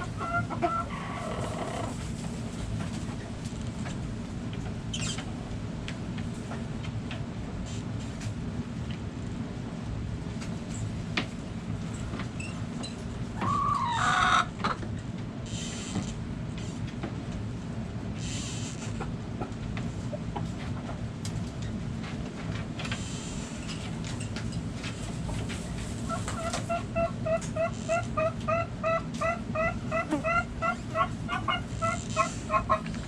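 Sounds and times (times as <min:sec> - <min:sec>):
chicken call: 0:00.0 - 0:01.9, 0:13.4 - 0:14.5, 0:26.1 - 0:32.9.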